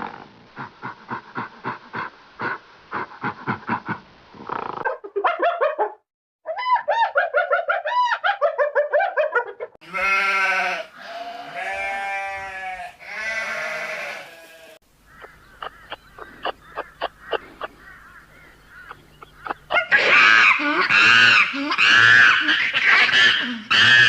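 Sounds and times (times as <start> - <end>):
high-pitched yips: 6.5 - 9.5
long bleats: 9.8 - 14.8
sharp clicks and short calls: 15.2 - 17.7, 18.8 - 21.5.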